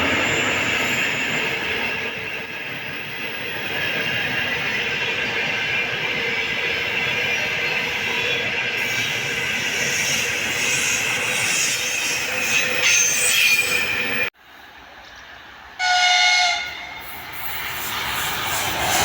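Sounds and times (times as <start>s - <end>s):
train wheels rushing on rails: 0.0s - 19.0s
train horn: 15.8s - 17.1s.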